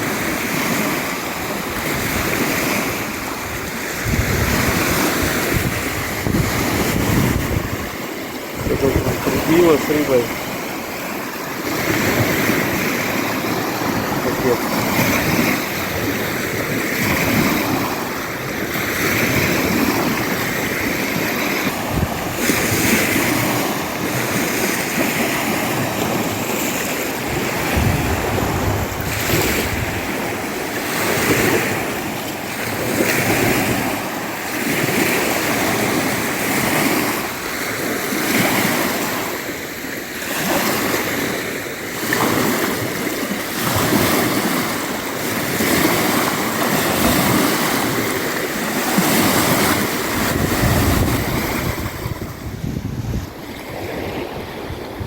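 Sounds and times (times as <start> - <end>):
wind gusting on microphone: 0.0 - 10.7, 11.6 - 34.0, 49.0 - 55.0
waves washing against shore: 0.0 - 55.0.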